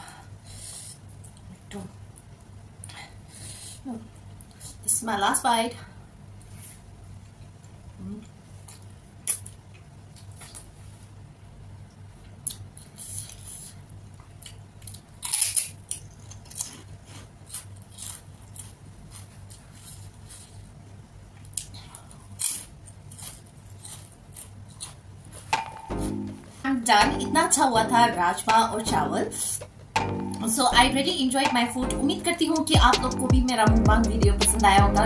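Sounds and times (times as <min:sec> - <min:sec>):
low steady hum: 0:00.0 - 0:35.0
crunchy chewing: 0:12.4 - 0:25.6.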